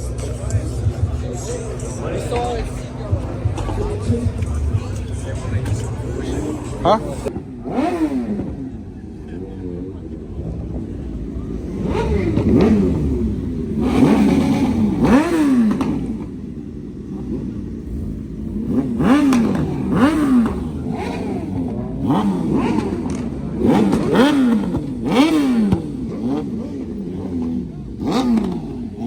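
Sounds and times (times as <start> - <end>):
engine revving in short blips: 11.6 - 16.4, 17.3 - 29.0.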